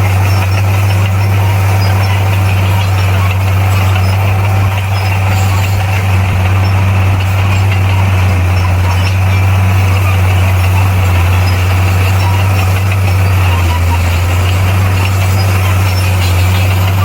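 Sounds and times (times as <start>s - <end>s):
bulldozer engine droning: 0.0s - 17.0s.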